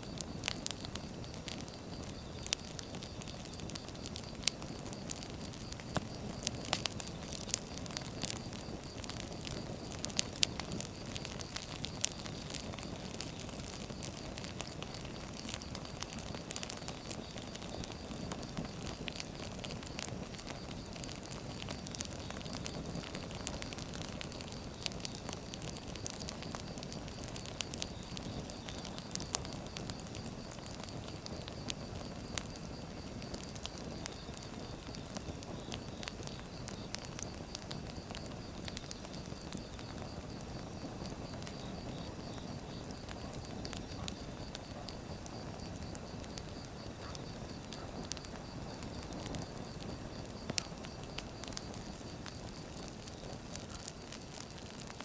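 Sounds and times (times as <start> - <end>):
firewood crackling and popping: 0.0 - 55.0
flames rushing: 0.0 - 55.0.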